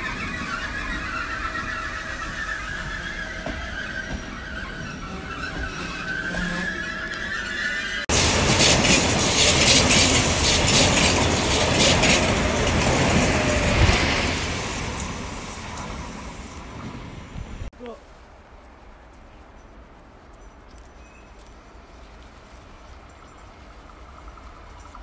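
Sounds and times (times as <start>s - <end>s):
train wheel squeal: 0.0s - 17.3s
fast train rushing past: 0.0s - 17.7s.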